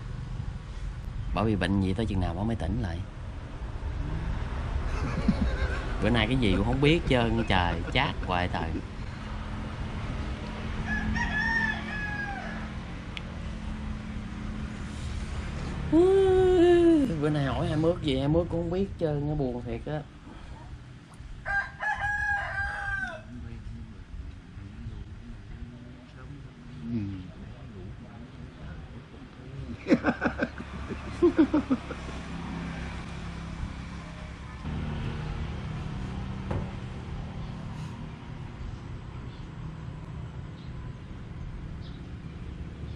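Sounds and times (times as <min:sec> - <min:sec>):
rooster crowing: 0:10.8 - 0:12.9, 0:21.4 - 0:23.4
vehicle engine running: 0:30.0 - 0:42.9.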